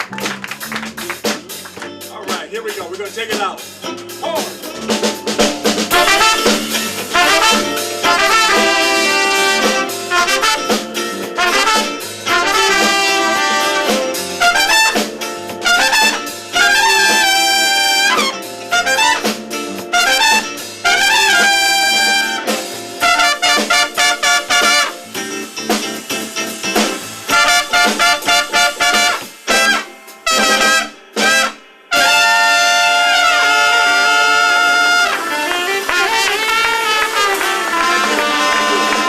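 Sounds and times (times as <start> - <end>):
live band playing: 0.0 - 39.0
brass-like lead line bending notes: 5.9 - 25.1, 27.3 - 39.0.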